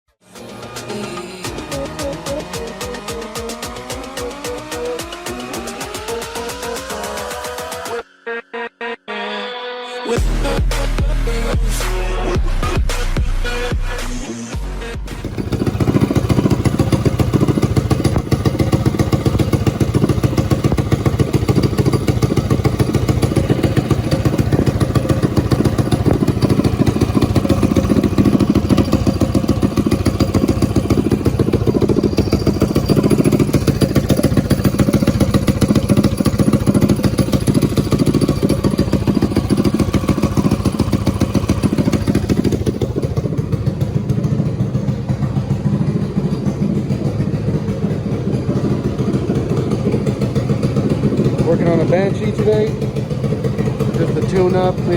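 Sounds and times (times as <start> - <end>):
minibike engine running: 15.1 - 54.9.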